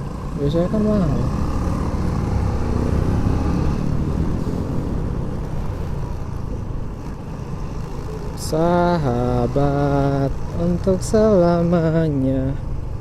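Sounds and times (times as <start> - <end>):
motorcycle engine: 0.0 - 13.0
man singing: 8.4 - 12.6.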